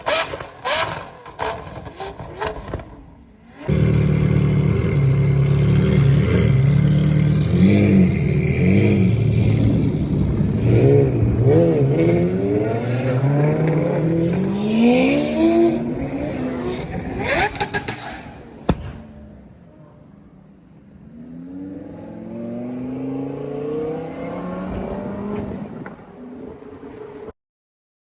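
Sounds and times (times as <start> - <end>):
sports car engine revving: 3.6 - 18.6, 21.0 - 25.8.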